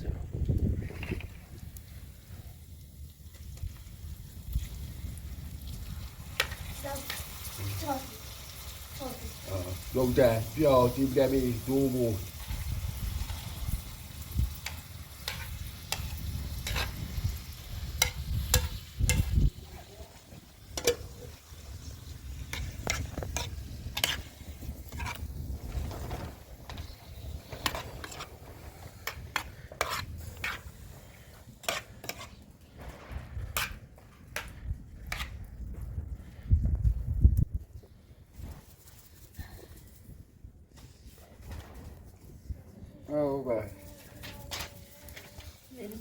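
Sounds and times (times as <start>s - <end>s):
utensil stirring in cooking pot: 6.0s - 32.7s, 33.6s - 35.4s, 43.5s - 46.0s.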